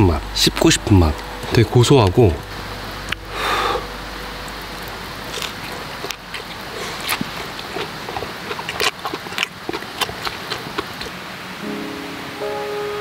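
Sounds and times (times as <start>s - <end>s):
gas stove hissing: 0.0s - 7.1s
mouth chewing with clicks and smacks: 4.5s - 11.2s.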